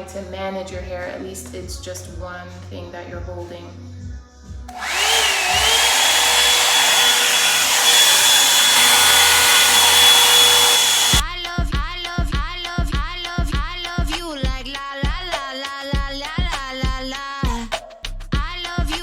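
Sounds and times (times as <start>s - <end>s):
hot-air brush dryer running: 4.7s - 11.2s
background music with a beat: 11.2s - 19.0s.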